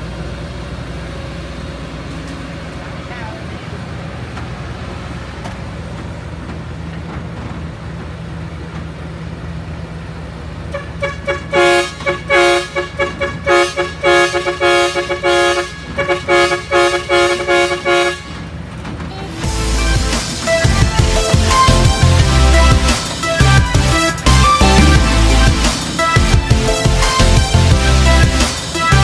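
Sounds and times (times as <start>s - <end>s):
heavy diesel engine running: 0.0s - 29.0s
vehicle horn honking: 10.7s - 18.5s.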